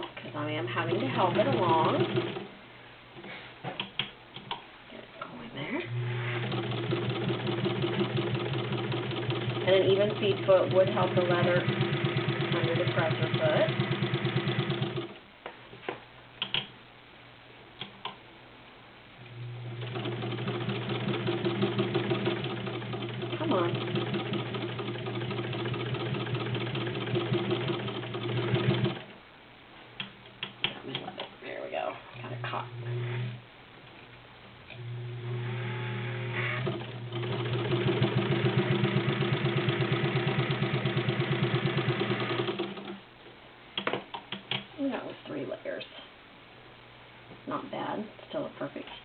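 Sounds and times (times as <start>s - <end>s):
sewing machine motor humming: 0.8s - 2.5s, 5.9s - 15.2s, 19.3s - 29.1s, 32.3s - 33.4s, 34.7s - 43.0s
sewing machine stitching leather: 0.9s - 2.5s, 5.9s - 15.2s, 19.6s - 29.1s, 35.2s - 43.0s.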